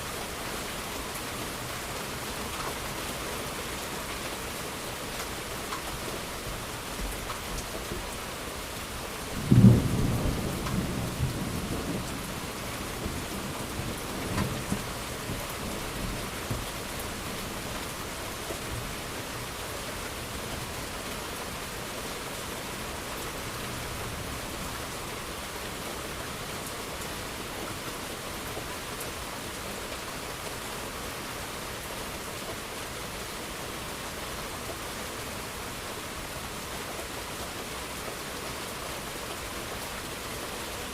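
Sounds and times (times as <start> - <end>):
steady rain: 0.0 - 40.9
thunderclap and rumble: 9.4 - 16.7.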